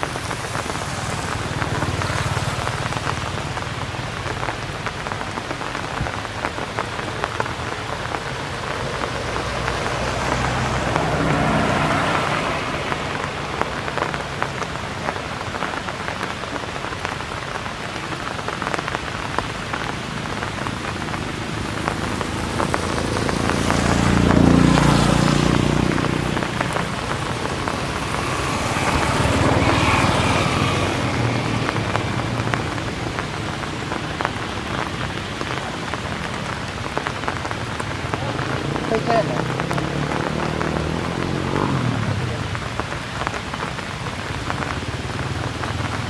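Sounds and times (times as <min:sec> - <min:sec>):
rain drop ticks: 0:00.0 - 0:46.0
steady rain hiss: 0:00.0 - 0:46.0.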